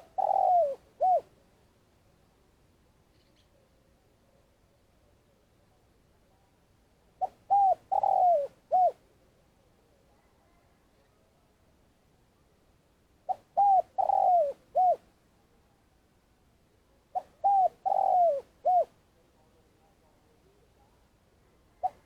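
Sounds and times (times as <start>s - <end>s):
dove cooing: 0.0s - 1.3s, 7.2s - 9.0s, 13.3s - 15.0s, 17.1s - 19.0s, 21.8s - 22.0s.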